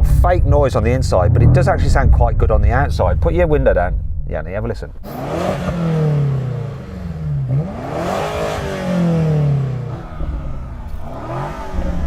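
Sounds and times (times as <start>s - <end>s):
car engine revving: 4.9s - 12.0s.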